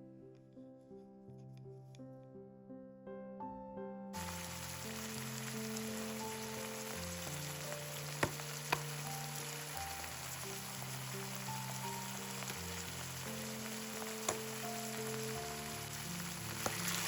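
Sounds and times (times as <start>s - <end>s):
background music: 0.0s - 17.0s
food sizzling in frying pan: 4.2s - 17.0s.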